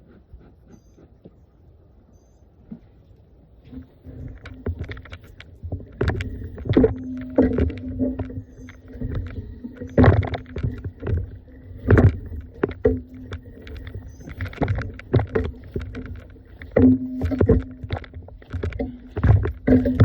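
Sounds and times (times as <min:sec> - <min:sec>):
low hum: 0:01.8 - 0:20.0
footsteps: 0:03.7 - 0:20.0.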